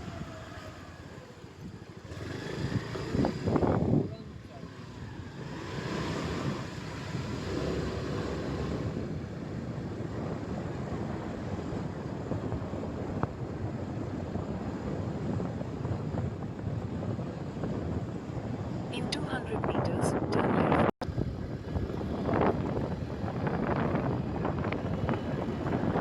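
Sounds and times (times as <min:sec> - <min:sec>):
motorcycle road and engine noise: 0:00.0 - 0:26.0
wind rushing over microphone: 0:00.0 - 0:26.0.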